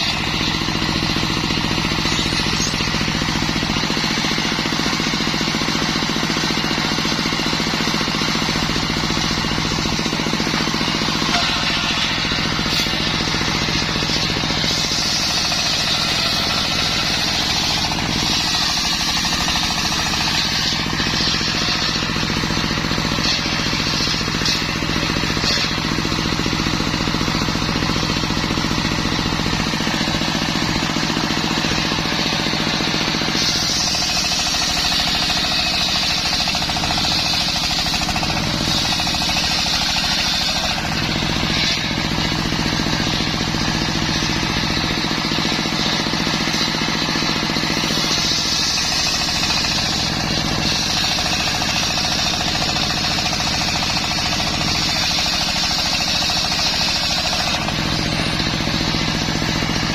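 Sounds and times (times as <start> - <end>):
saw blade cutting wood: 0.0 - 59.9
circular saw humming: 8.5 - 59.9.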